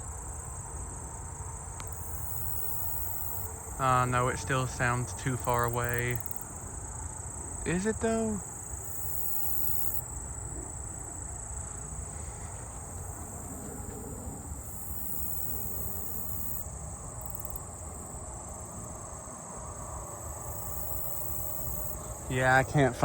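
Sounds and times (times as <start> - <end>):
crickets trilling: 0.0 - 23.0
shrill insect buzz: 1.8 - 10.3, 14.6 - 17.8, 20.2 - 23.0.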